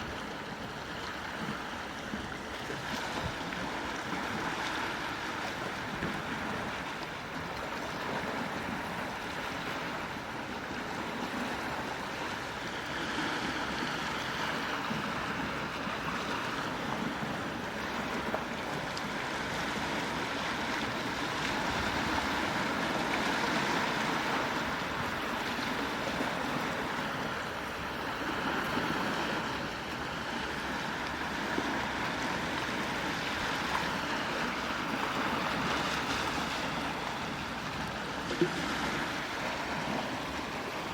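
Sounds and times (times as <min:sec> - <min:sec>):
sea waves washing on shore: 0:00.0 - 0:40.9.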